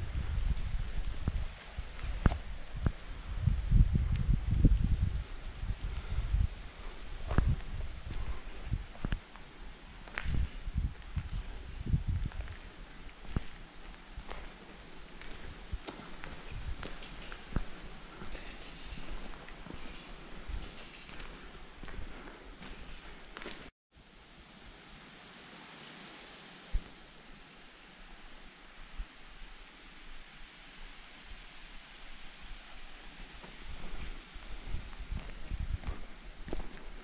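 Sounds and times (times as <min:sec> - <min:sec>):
footsteps on a path: 0:05.7 - 0:23.7, 0:33.3 - 0:37.0
small bird chirping: 0:08.4 - 0:14.1, 0:14.7 - 0:24.4.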